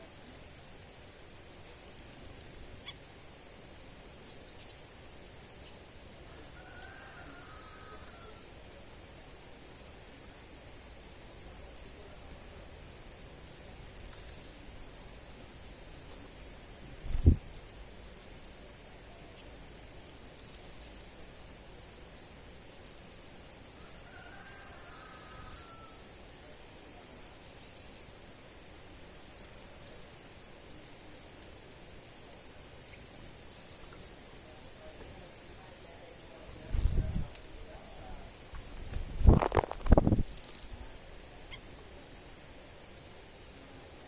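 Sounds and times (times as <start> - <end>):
steady background hiss: 0.0 - 44.0
birds chirping: 1.9 - 19.6, 32.7 - 40.0, 40.8 - 43.7.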